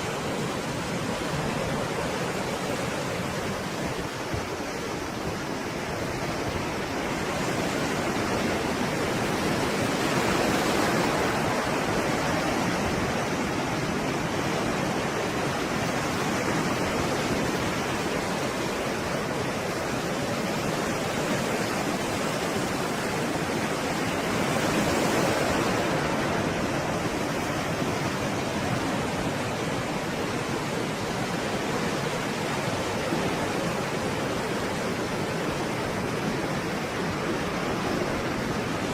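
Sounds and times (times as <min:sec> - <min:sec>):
waves breaking: 0:00.0 - 0:38.9.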